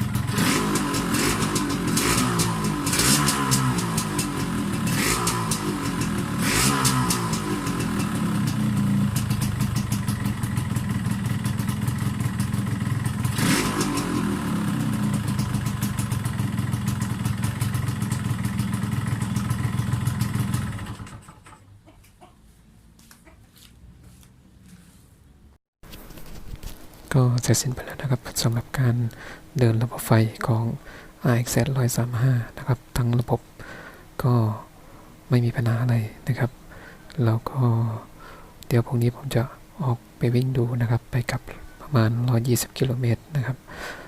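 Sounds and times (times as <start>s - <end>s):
two-stroke motorcycle engine: 0.0s - 21.6s.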